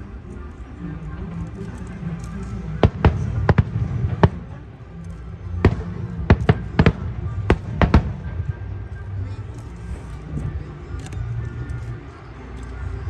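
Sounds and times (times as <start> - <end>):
fireworks bursting: 2.6 - 4.6, 5.6 - 9.2.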